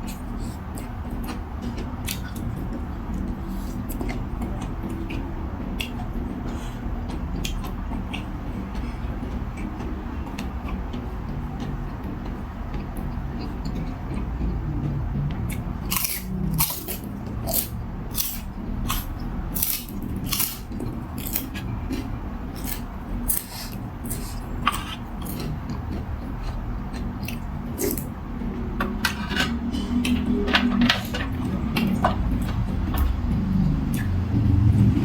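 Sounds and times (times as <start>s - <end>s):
low rumble: 0.0s - 35.0s
person eating noodle soup: 21.2s - 28.1s.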